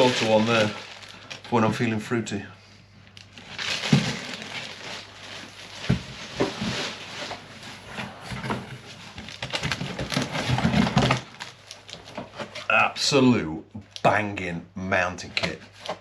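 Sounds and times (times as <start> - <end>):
plastic packaging rustling: 0.0 - 2.2, 3.0 - 12.7.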